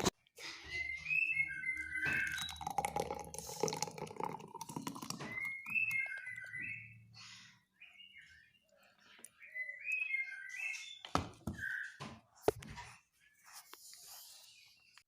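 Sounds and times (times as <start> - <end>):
bird twittering: 0.7 - 3.2, 4.8 - 12.0.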